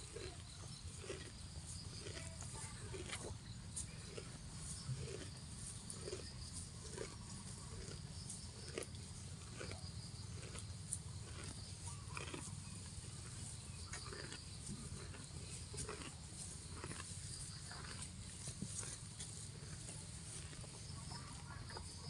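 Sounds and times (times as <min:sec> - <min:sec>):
cow tearing and chewing grass: 0:00.0 - 0:22.0.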